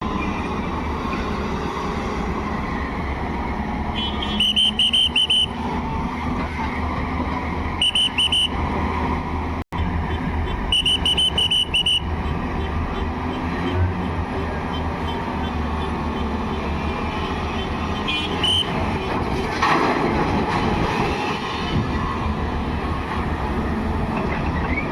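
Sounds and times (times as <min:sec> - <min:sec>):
high-pitched warning beeps: 0:10.8 - 0:12.1.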